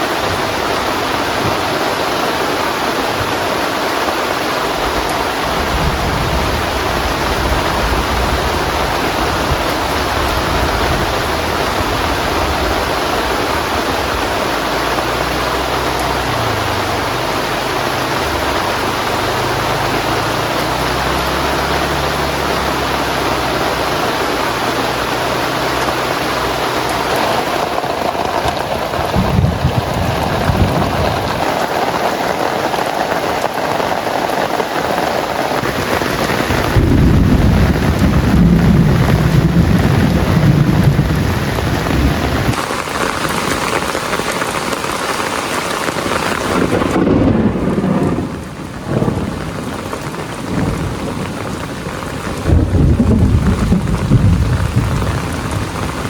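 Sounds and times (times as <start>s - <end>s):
heavy rain on tent canopy: 0.0s - 56.0s
thunder rumbling: 0.1s - 56.0s.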